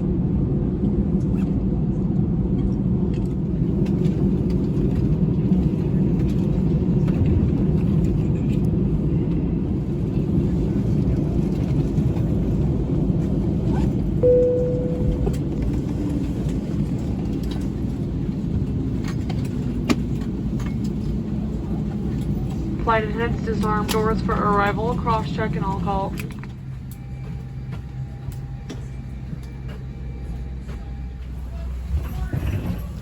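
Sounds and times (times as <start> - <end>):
aircraft engines idling rumble: 0.0 - 33.0
cabin chime: 14.2 - 15.6.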